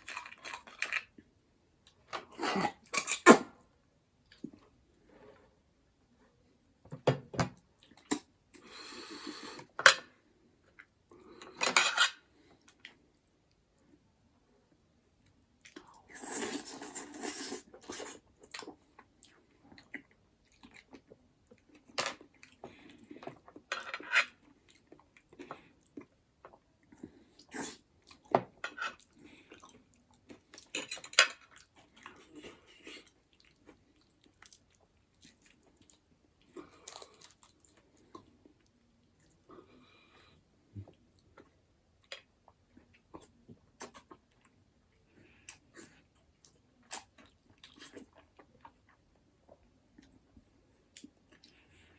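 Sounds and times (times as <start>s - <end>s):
chewing and crunching: 15.2s - 51.9s.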